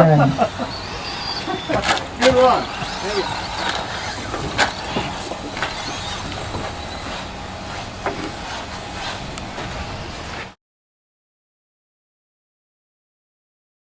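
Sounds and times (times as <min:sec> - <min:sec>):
faint motor whine: 0:00.0 - 0:10.6
rc trucks running: 0:00.4 - 0:10.6.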